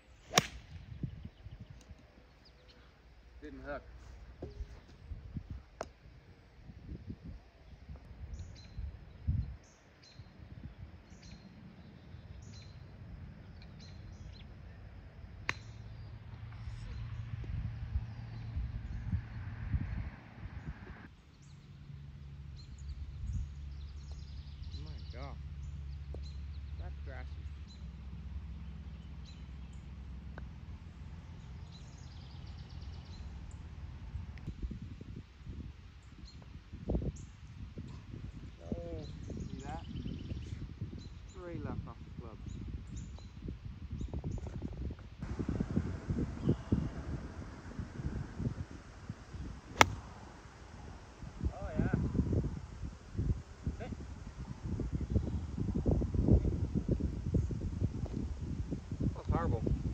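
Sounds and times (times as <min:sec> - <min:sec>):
small birds chirping: 0:00.0 - 0:04.8, 0:07.5 - 0:19.1, 0:22.5 - 0:33.7, 0:36.0 - 0:45.0
low steady rumble: 0:12.2 - 0:35.3, 0:45.1 - 0:59.9.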